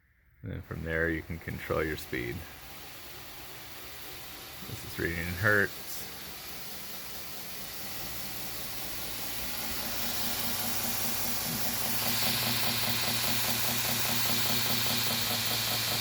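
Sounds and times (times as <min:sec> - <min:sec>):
belt grinder motor speeding up: 0:03.8 - 0:16.0.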